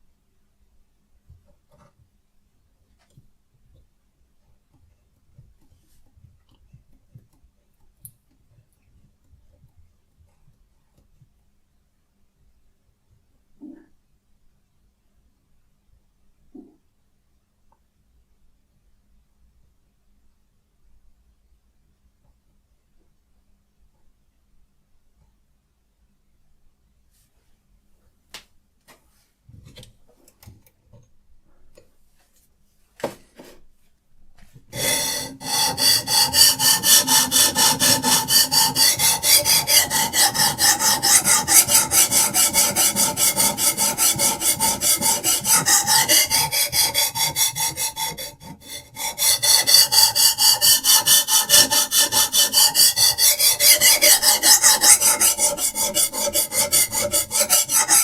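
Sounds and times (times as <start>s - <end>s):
sharpening stone rasping on blade: 34.8s - 58.0s.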